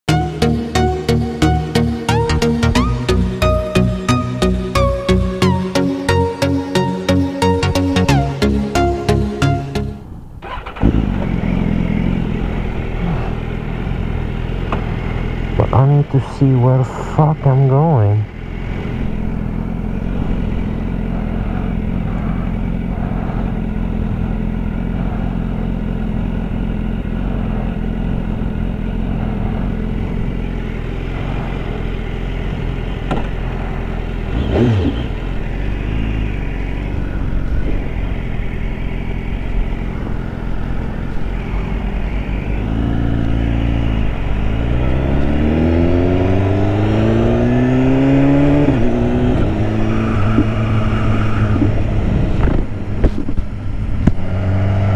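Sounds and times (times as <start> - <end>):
motorcycle engine running: 0.0 - 54.9
wind noise: 48.3 - 54.9.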